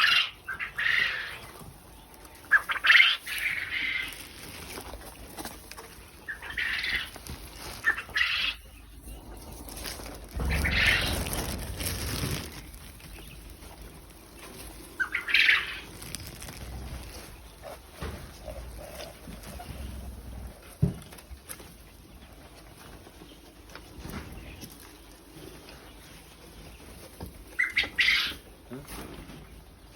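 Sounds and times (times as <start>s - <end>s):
quail calls: 0.0s - 1.6s, 2.4s - 4.3s, 6.2s - 8.9s, 10.4s - 11.6s, 14.9s - 16.1s, 27.6s - 28.5s.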